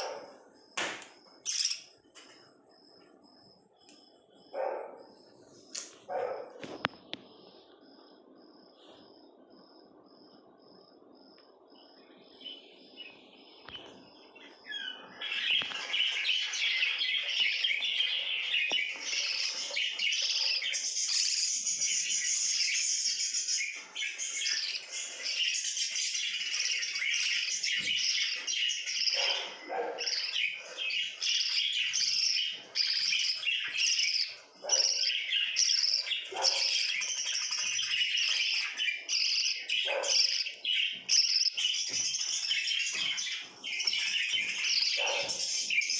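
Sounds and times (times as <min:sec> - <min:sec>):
lovebirds chirping: 0:00.0 - 0:45.9.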